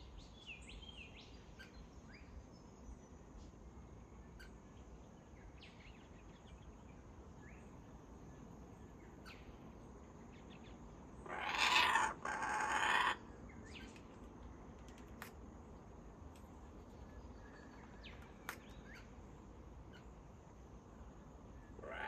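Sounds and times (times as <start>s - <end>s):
harsh bird calls: 11.2s - 14.2s, 21.6s - 22.0s.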